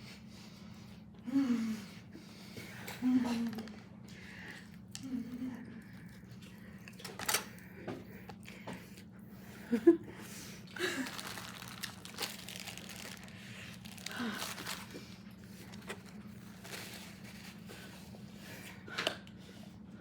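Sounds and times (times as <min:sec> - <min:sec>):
paper wrapping crinkling: 0:10.8 - 0:18.1
person chewing: 0:11.0 - 0:16.4.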